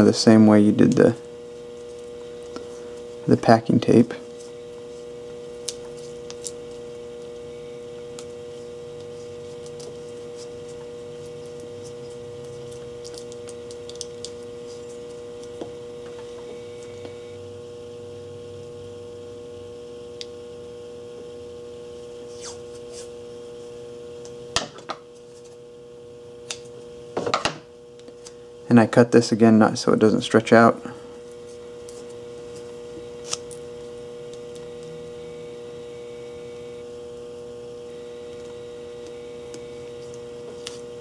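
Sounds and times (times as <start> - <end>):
electrical tape rustling: 0.0 - 17.2, 30.1 - 35.0, 37.8 - 41.0
steady electrical hum: 0.0 - 41.0.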